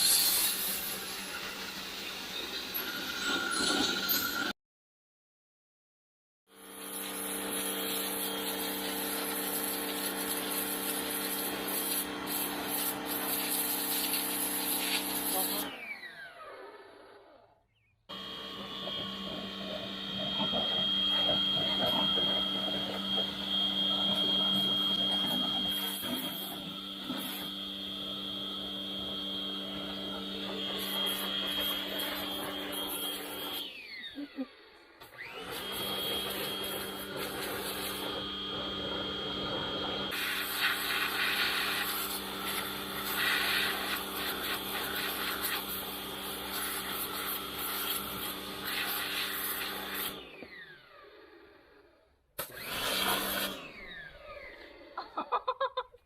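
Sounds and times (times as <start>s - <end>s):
electric motor whining: 18.1s - 51.5s, 52.4s - 55.0s.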